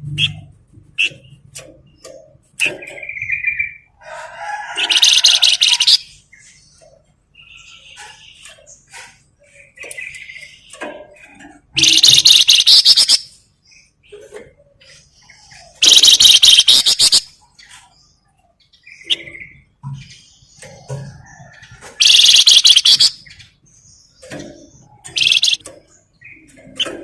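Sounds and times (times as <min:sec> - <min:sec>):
bird rattling trilled chatter: 0:04.6 - 0:06.0, 0:11.8 - 0:13.3, 0:15.8 - 0:17.3, 0:21.9 - 0:23.3, 0:25.1 - 0:25.6.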